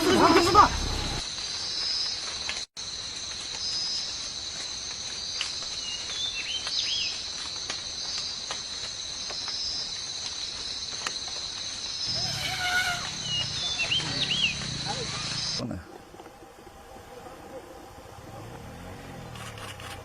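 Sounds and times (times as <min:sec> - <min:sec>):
high-pitched insect chorus: 0:00.0 - 0:20.0
bird chirps: 0:12.0 - 0:15.6.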